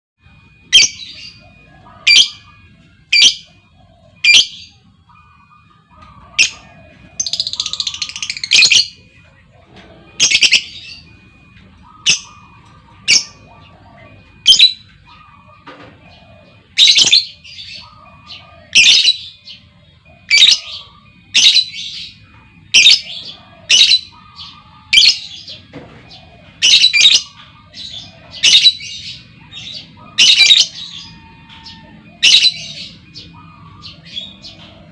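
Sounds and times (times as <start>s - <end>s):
bird chattering: 0.7s - 34.9s
lovebird high calls: 6.1s - 9.0s, 20.2s - 25.7s, 26.6s - 34.9s.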